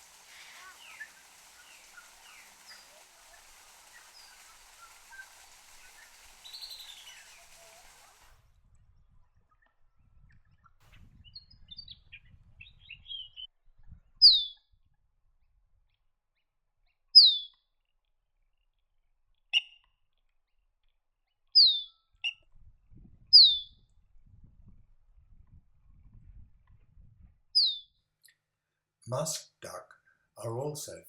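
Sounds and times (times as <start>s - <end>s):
bird chips and twitters: 0.0s - 8.2s, 14.2s - 14.6s, 17.2s - 17.6s, 21.6s - 22.4s, 23.4s - 23.7s, 27.6s - 27.8s
bird whistles sliding downward: 0.0s - 8.3s, 23.4s - 23.6s
short clicks: 0.0s - 8.4s.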